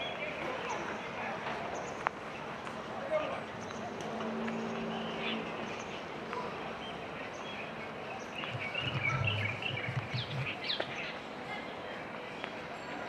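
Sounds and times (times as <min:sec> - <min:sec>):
outdoor background noise: 0:00.0 - 0:13.0
small birds chirping: 0:06.8 - 0:11.2.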